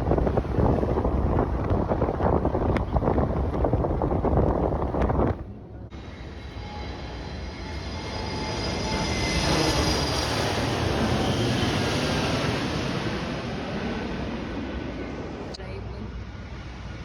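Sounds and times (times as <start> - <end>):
airplane passing overhead: 5.2 - 17.0.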